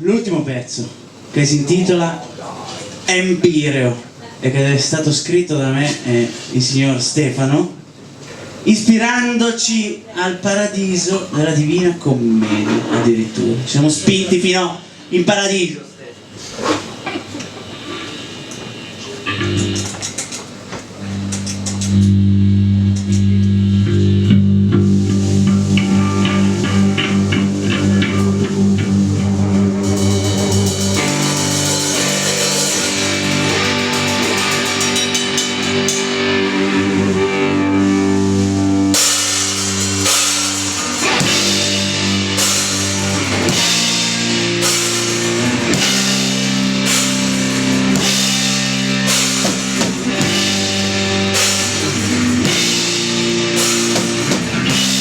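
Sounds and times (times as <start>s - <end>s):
electric guitar: 16.8s - 55.0s
drum kit beat: 17.2s - 55.0s
cymbals: 17.6s - 20.2s, 21.0s - 55.0s
electric bass: 19.2s - 20.1s, 20.9s - 55.0s.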